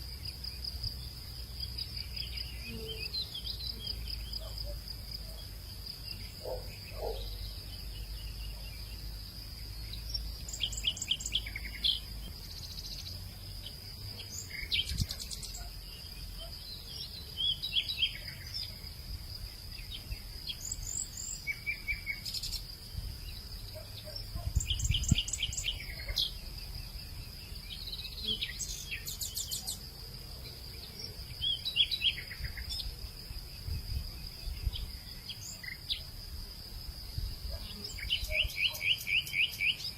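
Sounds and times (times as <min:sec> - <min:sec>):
birds chirping: 0:01.8 - 0:18.8.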